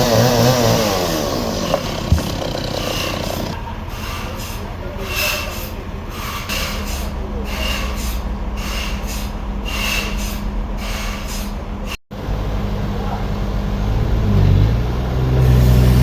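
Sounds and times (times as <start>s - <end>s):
rasping strokes: 0.0s - 3.6s.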